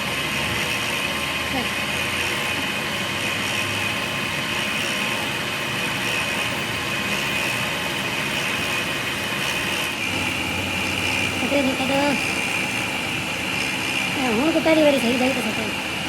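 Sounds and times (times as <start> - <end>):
engine-like running noise: 0.0 - 16.0.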